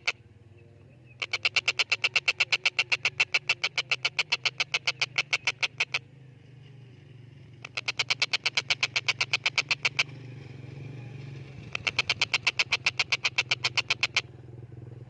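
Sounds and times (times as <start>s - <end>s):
kingfisher harsh rattling chatter: 1.2s - 6.0s, 11.7s - 14.2s.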